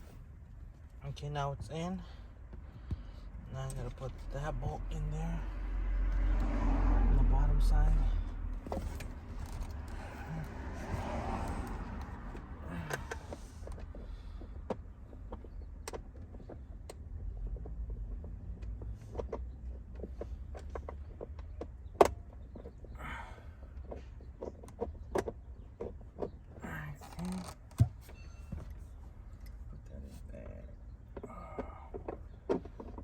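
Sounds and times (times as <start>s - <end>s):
low steady rumble: 0.0s - 24.8s.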